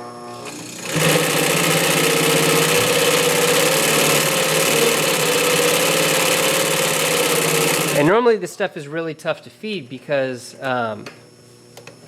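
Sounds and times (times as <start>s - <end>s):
motor hum: 0.0s - 8.3s
industrial sewing machine stitching: 0.4s - 8.1s.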